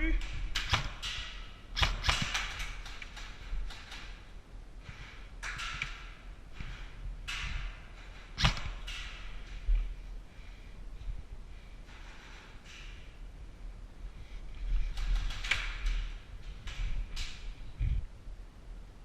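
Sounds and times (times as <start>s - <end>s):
sharp knocks and cracks: 0.2s - 4.3s, 4.9s - 9.9s, 14.7s - 17.6s.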